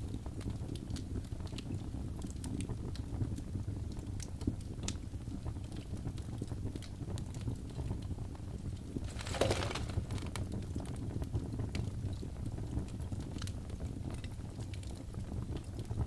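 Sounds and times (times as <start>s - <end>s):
fire crackling: 4.0s - 11.8s.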